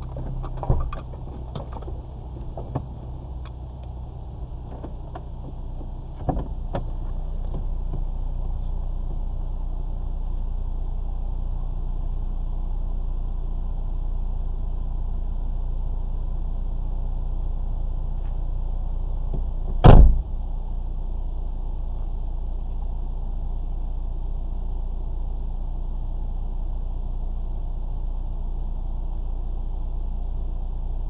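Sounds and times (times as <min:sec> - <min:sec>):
car engine idling: 0:00.0 - 0:31.0
loud thump: 0:19.8 - 0:20.4.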